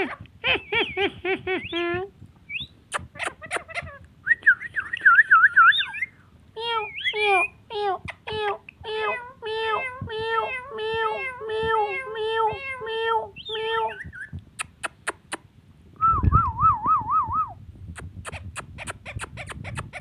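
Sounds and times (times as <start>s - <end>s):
parrot call notes: 4.8s - 7.6s, 13.3s - 14.4s.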